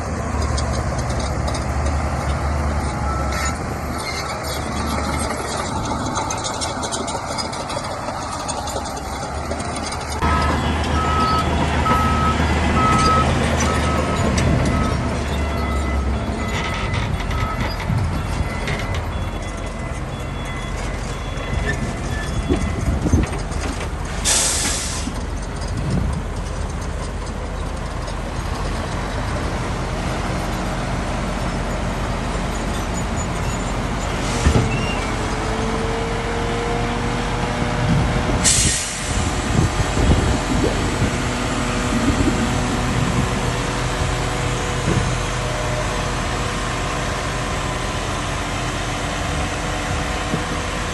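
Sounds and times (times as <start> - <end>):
bulldozer diesel engine running: 0.0 - 50.9
reversing alarm beeping: 10.2 - 23.2
short hiss of air: 24.2 - 25.2, 38.4 - 39.3.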